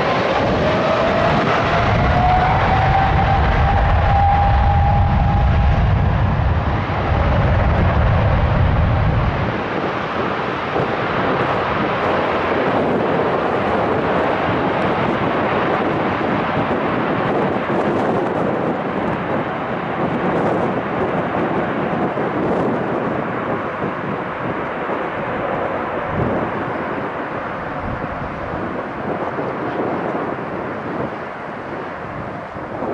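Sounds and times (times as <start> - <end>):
deep low rumble: 0.0 - 10.1
jet aircraft engine rushing: 0.0 - 32.9.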